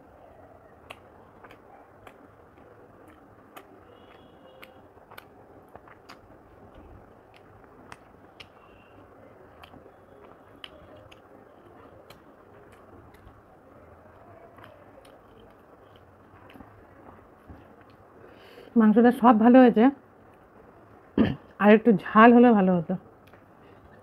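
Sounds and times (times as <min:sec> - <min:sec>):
person chewing food: 0:00.4 - 0:18.3
sharp mouth clicks: 0:00.8 - 0:06.4.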